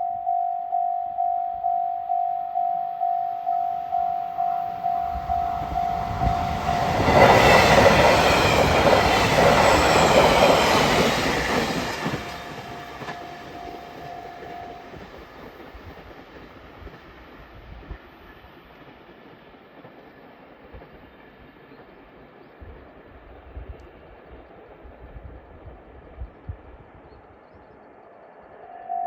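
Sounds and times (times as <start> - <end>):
level crossing warning bell: 0.0 - 10.8, 11.7 - 15.0
train passing with wheel noise: 2.6 - 29.0.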